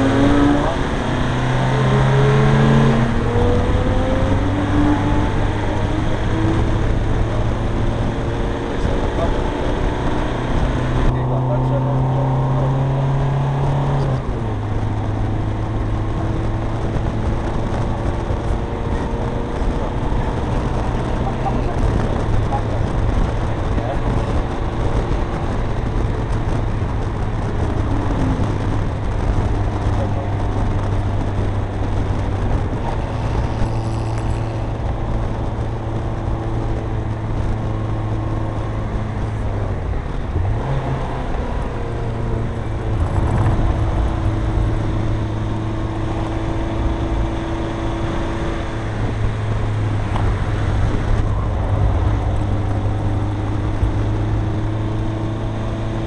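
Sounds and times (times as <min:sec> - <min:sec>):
diesel engine pulling steadily: 0:00.0 - 0:56.0
road and wind noise: 0:00.0 - 0:56.0.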